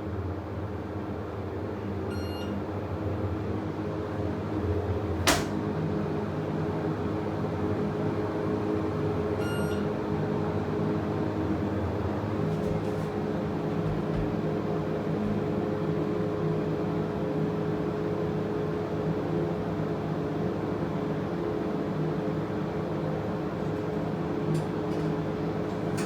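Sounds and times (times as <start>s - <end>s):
elevator cab humming: 1.5s - 6.0s, 8.5s - 16.8s, 22.4s - 26.0s.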